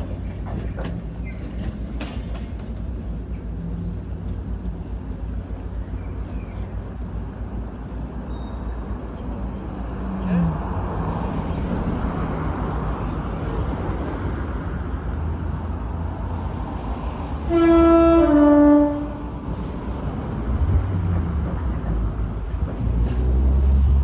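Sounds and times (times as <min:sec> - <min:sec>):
diesel locomotive engine droning: 0:00.0 - 0:24.0
two-tone locomotive horn: 0:17.4 - 0:19.4.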